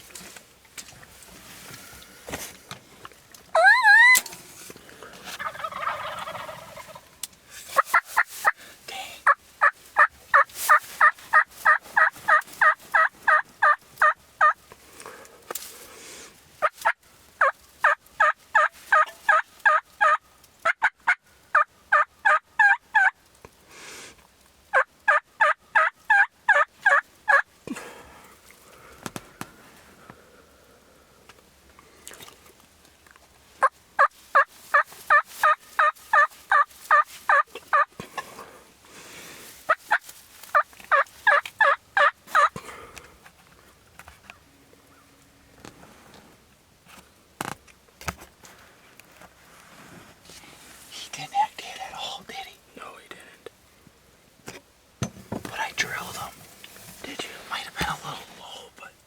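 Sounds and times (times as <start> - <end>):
turkey yelping: 3.5 - 4.3, 5.3 - 7.1, 9.6 - 14.6, 16.8 - 23.1, 24.7 - 27.4, 33.6 - 37.9, 39.7 - 42.5.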